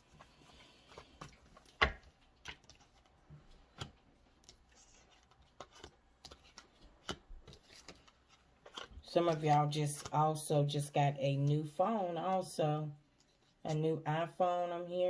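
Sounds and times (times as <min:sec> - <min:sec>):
cards clicking and tapping: 0:00.9 - 0:10.2.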